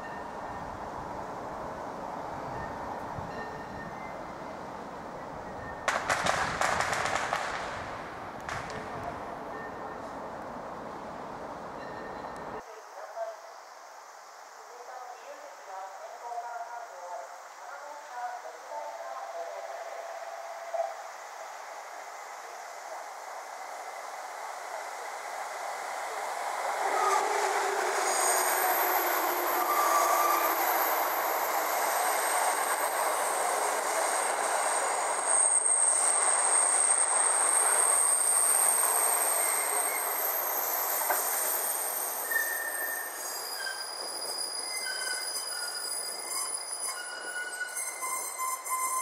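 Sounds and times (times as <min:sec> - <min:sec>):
train rumbling past: 0:19.3 - 0:49.0
high wheel squeal: 0:26.8 - 0:49.0.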